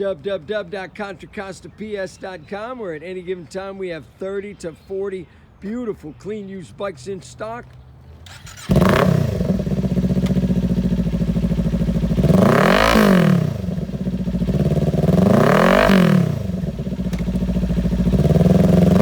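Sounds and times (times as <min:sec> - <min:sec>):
motorcycle engine idling and revving: 0:08.0 - 0:19.0.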